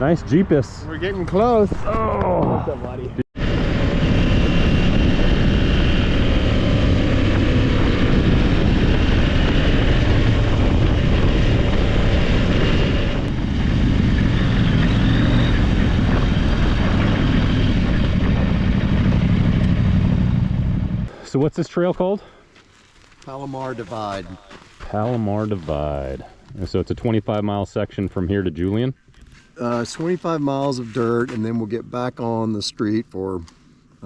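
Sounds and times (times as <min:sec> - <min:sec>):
wind noise: 0:00.0 - 0:21.1
motorcycle engine running: 0:03.4 - 0:21.1.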